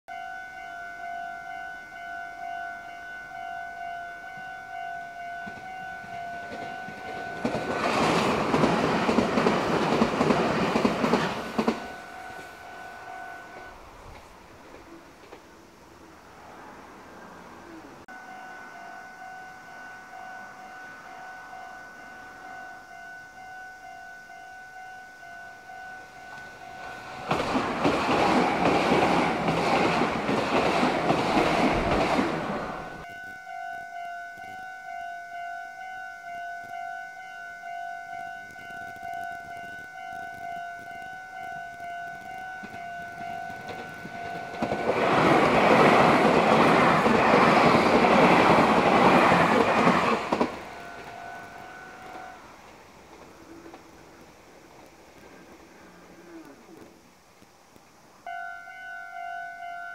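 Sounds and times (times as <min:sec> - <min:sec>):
level crossing alarm ringing: 0:00.1 - 0:13.8, 0:18.1 - 0:27.4, 0:31.7 - 0:52.5, 0:58.2 - 0:59.9
electric trains passing: 0:00.1 - 0:59.9.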